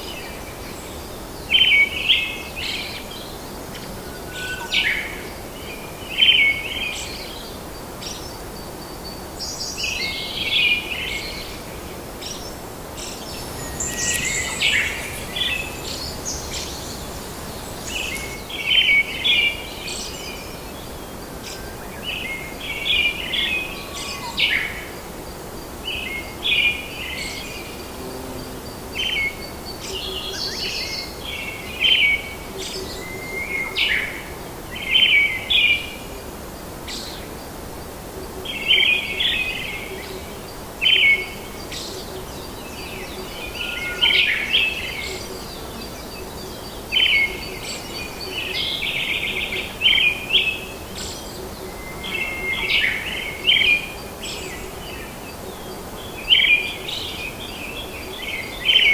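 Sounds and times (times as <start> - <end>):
birds chirping: 13.3 - 18.4
steady background hiss: 13.3 - 18.4.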